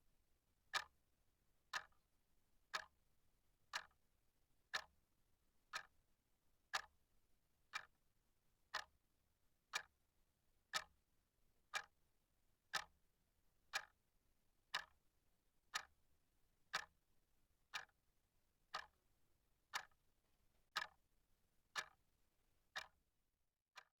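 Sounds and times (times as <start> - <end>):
clock ticking: 1.7 - 1.9, 2.7 - 2.9, 3.7 - 3.9, 5.7 - 5.9, 6.7 - 6.9, 7.7 - 7.9, 8.7 - 8.9, 9.7 - 9.9, 10.7 - 10.9, 11.7 - 11.9, 12.7 - 13.0, 14.7 - 15.0, 15.7 - 15.9, 16.7 - 16.9, 17.7 - 18.0, 18.7 - 19.0, 19.7 - 20.0, 20.7 - 21.0, 21.8 - 22.0, 22.7 - 23.0.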